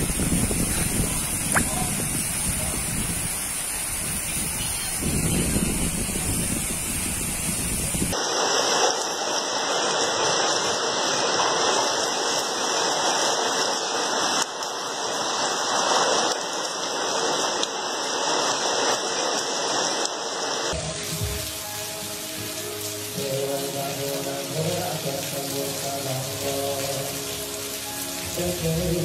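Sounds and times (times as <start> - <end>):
wind buffeting microphone: 0.0 - 8.2
runoff water rushing into drain: 0.0 - 28.8
heavy rain: 0.0 - 29.0.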